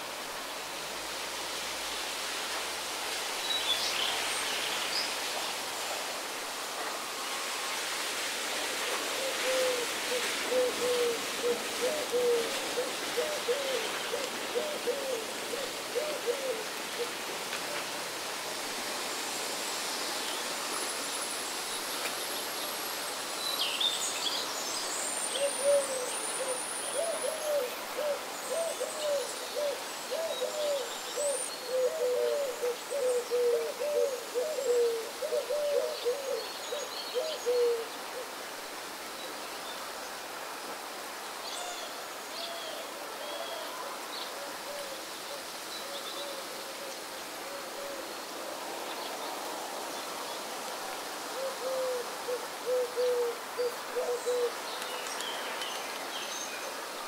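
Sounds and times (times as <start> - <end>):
outdoor hiss: 0.0 - 57.0.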